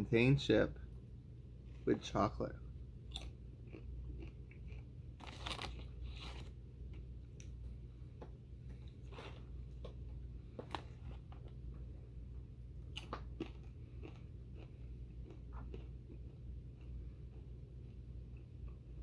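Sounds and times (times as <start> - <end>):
person chewing crunchy chips: 3.1 - 7.6, 12.9 - 17.5.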